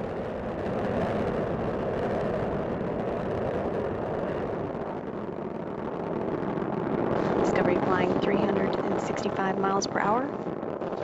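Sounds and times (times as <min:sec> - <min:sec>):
rocket engines roaring: 0:00.0 - 0:11.0.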